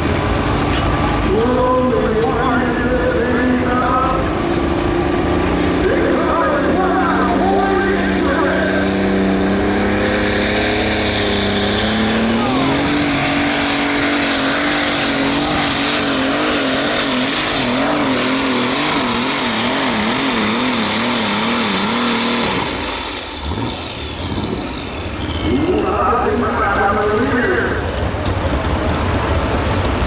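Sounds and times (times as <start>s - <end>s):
tractor engine running flat out: 0.0s - 30.0s.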